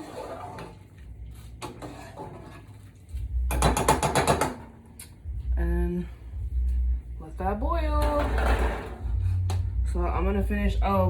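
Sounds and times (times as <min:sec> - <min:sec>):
spoon clattering against pot: 0:03.5 - 0:04.6.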